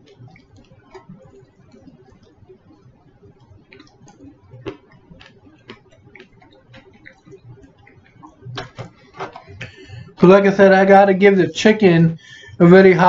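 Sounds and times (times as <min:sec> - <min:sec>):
chewing mouth clicks: 0:00.0 - 0:09.7.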